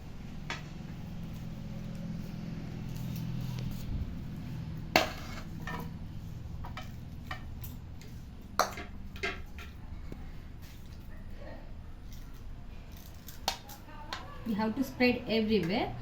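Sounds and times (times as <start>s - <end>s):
steady low hum: 0.0s - 11.1s
utensils clinking against bowl and pan: 4.8s - 9.8s, 13.0s - 16.0s.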